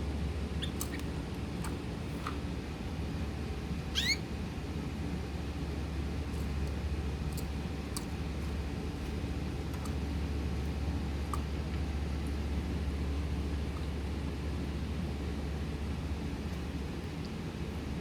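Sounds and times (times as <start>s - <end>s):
steady low hum: 0.0s - 18.0s
bird chirping: 3.9s - 4.2s.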